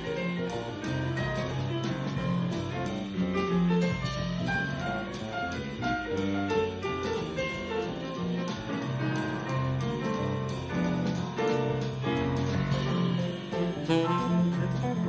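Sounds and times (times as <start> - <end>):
piano: 0.0 - 15.0
jazz band playing: 9.0 - 15.0
bass line: 12.8 - 15.0.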